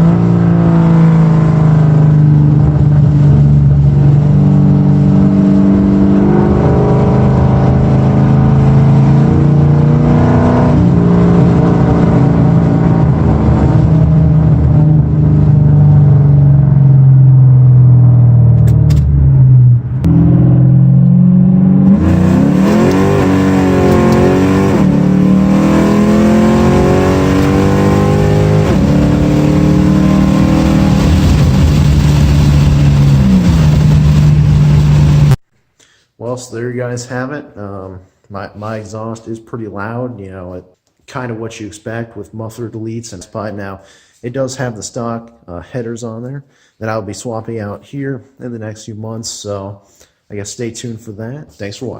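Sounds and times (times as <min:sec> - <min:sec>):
loud car exhaust note: 0:00.0 - 0:35.4.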